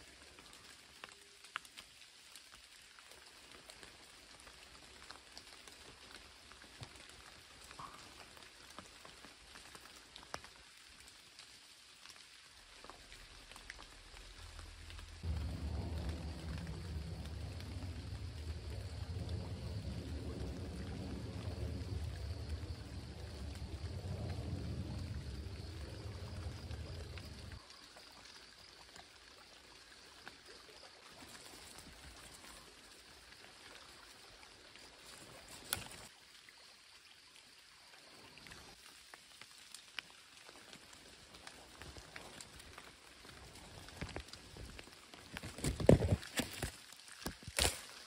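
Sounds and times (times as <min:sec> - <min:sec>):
light rain: 0:00.0 - 0:48.0
wind rumbling on microphone: 0:14.6 - 0:27.6, 0:41.5 - 0:46.7
berries snapping off vine: 0:45.6 - 0:48.0.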